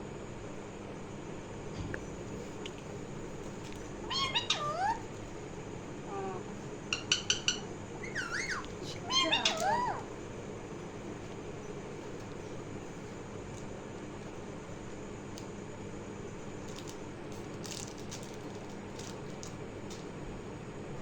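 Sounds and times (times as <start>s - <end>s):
parrot calling: 3.9s - 5.2s, 6.0s - 10.2s.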